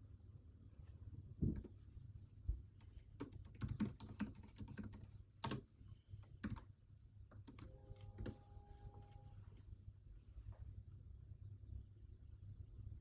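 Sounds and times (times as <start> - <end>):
typing on computer keyboard: 2.8 - 6.7, 7.3 - 8.4.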